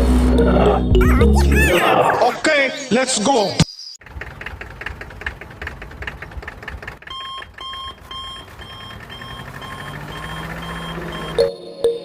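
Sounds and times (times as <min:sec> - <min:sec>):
small tractor motor rattling: 0:04.0 - 0:11.4
repeating electronic beep: 0:07.2 - 0:12.0.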